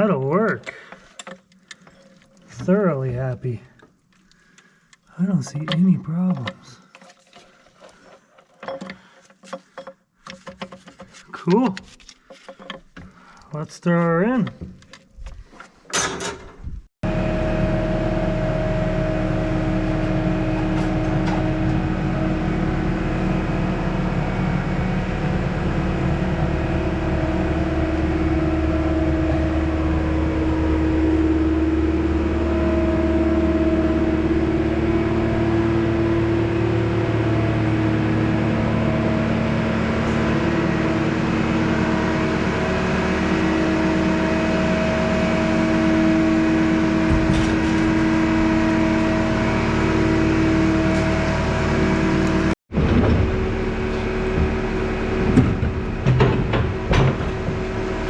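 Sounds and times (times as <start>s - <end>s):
machine humming: 17.0s - 58.0s.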